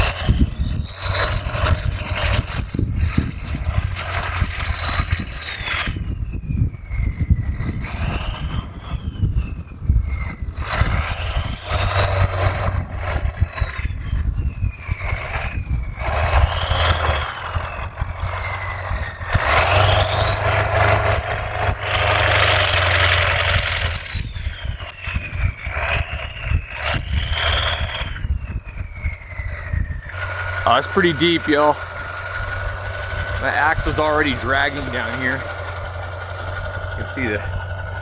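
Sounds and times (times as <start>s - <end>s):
diesel truck revving: 0.0s - 6.1s, 7.2s - 9.1s, 10.1s - 38.0s
high engine whine: 0.0s - 38.0s.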